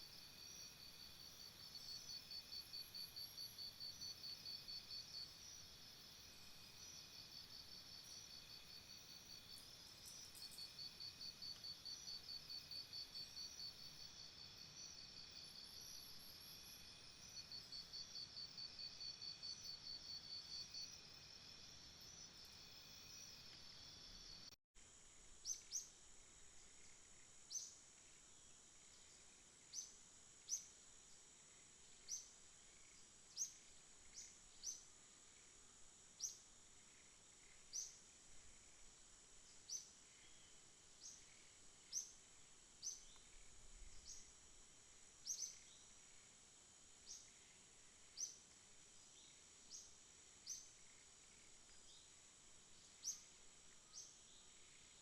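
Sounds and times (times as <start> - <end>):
insects trilling: 0.0 - 24.5, 31.4 - 55.0
rising insect chirp call: 0.0 - 24.5, 25.3 - 55.0
high insect drone: 0.0 - 55.0.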